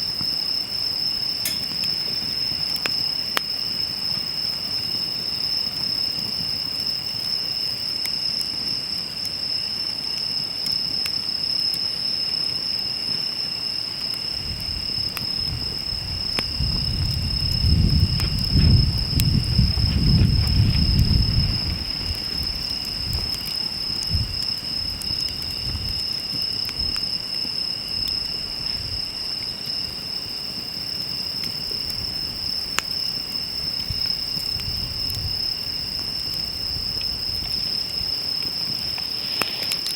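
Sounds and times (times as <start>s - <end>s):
campfire crackling and popping: 0.0s - 39.9s
crickets trilling: 0.0s - 39.9s
low rumble: 16.8s - 23.4s.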